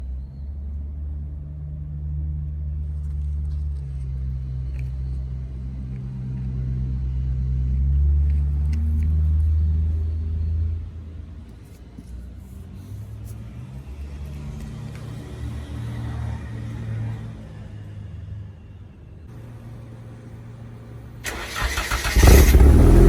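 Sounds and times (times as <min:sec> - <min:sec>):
car engine exhaust rumble: 0:21.3 - 0:23.0.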